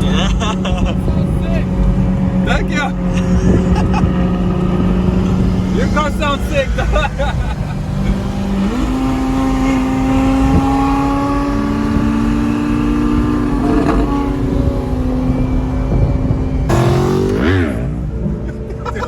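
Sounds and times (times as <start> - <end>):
sports car engines droning: 0.0 - 19.0
engine revving sharply: 16.7 - 18.1.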